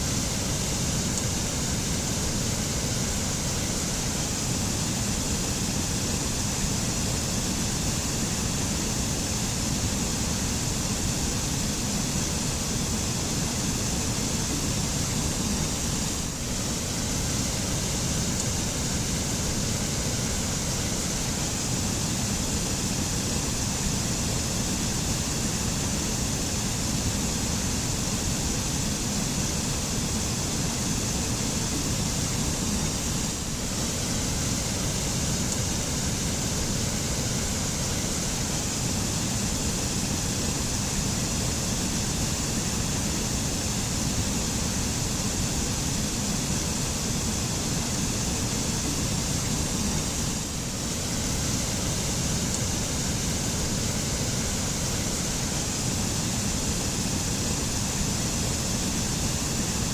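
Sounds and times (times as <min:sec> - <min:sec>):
waterfall and stream rushing: 0:50.0 - 0:59.9.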